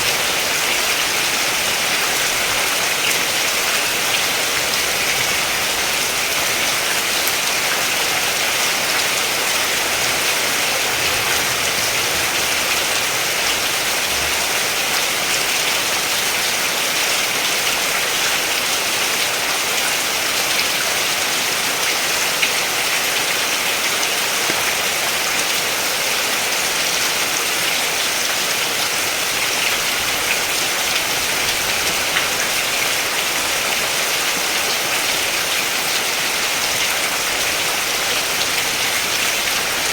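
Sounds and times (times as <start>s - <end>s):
distinct raindrops: 0.0s - 16.4s, 28.9s - 39.9s
steady rain hiss: 0.0s - 39.9s.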